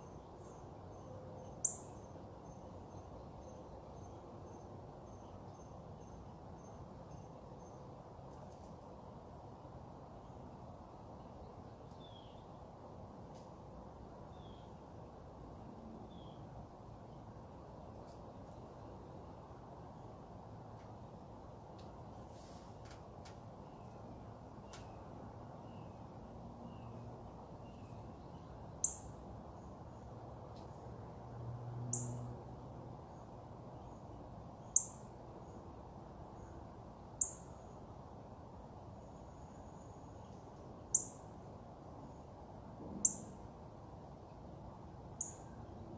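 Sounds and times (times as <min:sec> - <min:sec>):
bird chirping: 0:00.0 - 0:07.8, 0:27.6 - 0:29.2, 0:34.6 - 0:35.1
low background noise: 0:00.0 - 0:45.9.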